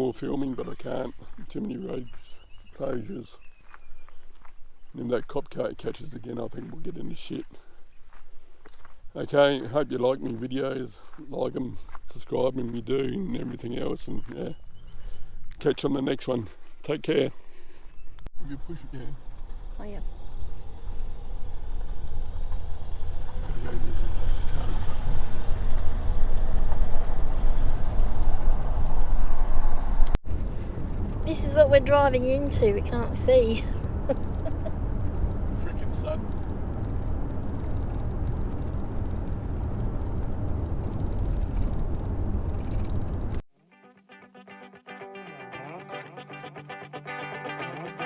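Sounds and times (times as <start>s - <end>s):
vehicle road and wind rumble: 18.5s - 43.4s.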